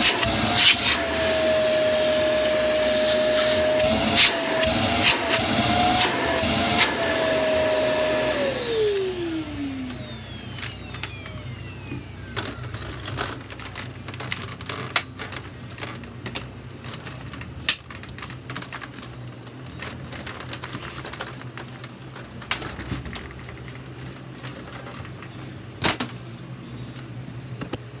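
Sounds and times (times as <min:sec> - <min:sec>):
vacuum cleaner motor whine: 0:00.0 - 0:14.5.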